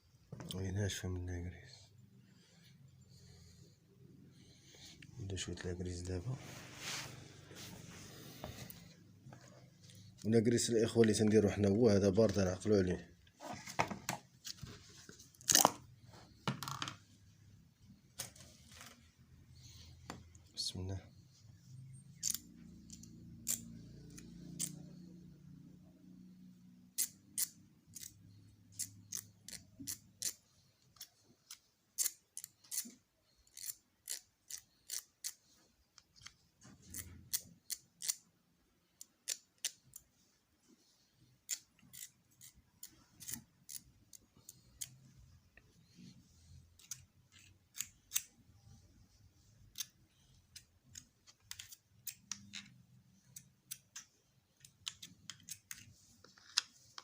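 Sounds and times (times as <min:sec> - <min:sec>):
small tool parts clicking: 0:22.2 - 0:24.8, 0:27.0 - 0:30.4, 0:31.0 - 0:35.4, 0:36.0 - 0:38.2, 0:39.0 - 0:40.1, 0:41.4 - 0:45.0.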